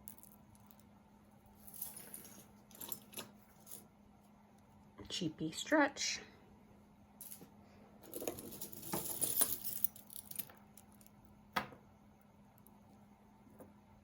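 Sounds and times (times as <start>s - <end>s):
jewelry jangling and clinking: 1.6s - 3.9s, 7.2s - 11.2s.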